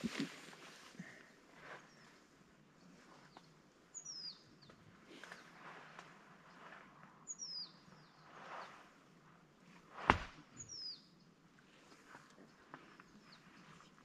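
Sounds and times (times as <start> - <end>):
faint bird chirps: 1.7 - 5.6, 6.5 - 8.9, 10.5 - 11.3.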